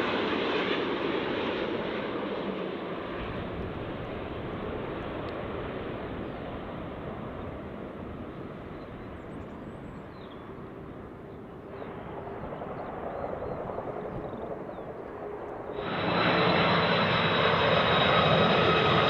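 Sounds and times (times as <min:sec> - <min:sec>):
jet airliner roar: 0:00.0 - 0:19.0
faint steady whine: 0:15.5 - 0:18.8.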